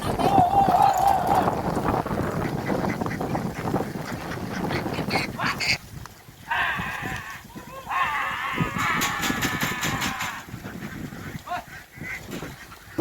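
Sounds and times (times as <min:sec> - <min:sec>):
ducks quacking: 0:02.1 - 0:05.8, 0:06.5 - 0:13.0.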